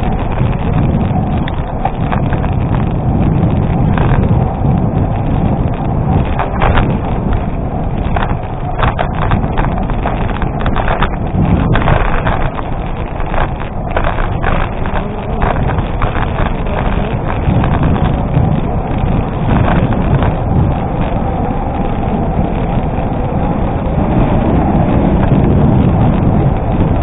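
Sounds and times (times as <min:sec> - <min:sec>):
bicycle tyres on gravel: 0:00.0 - 0:27.0
bike rattling: 0:00.0 - 0:27.0
wind on microphone: 0:00.0 - 0:27.0.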